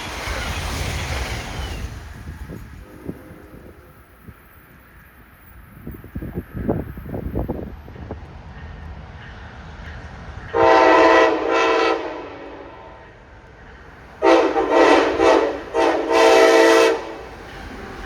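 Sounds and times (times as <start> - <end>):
train air horn blasts: 10.5 - 13.0, 14.2 - 17.4.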